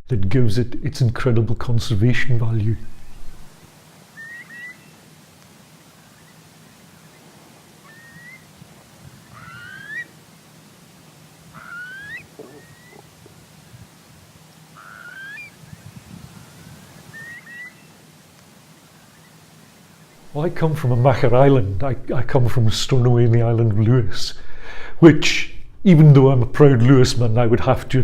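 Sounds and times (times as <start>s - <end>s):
bird upward-sliding call: 2.9s - 5.0s, 5.8s - 8.5s, 9.1s - 10.1s, 11.5s - 13.3s, 14.7s - 18.0s.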